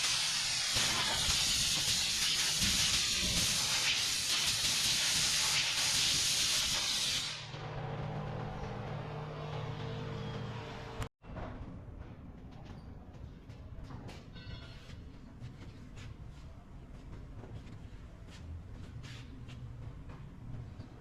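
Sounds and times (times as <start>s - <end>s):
spraying hiss: 0.0s - 7.5s.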